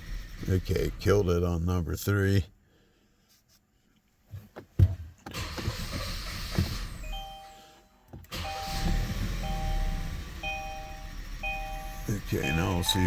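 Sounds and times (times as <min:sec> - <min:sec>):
engine cranking: 0:05.3 - 0:07.0
dashboard warning chime beeping: 0:07.0 - 0:13.0
ignition click: 0:08.2 - 0:13.0.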